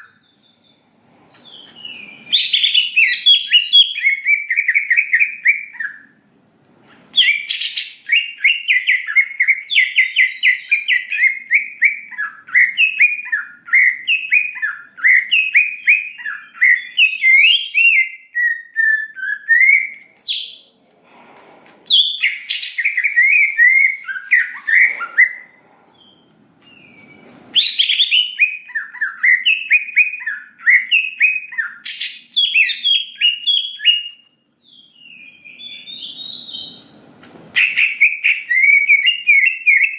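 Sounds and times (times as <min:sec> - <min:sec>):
bird singing chattering whistles: 0:01.4 - 0:06.1, 0:21.9 - 0:36.9, 0:37.6 - 0:39.9.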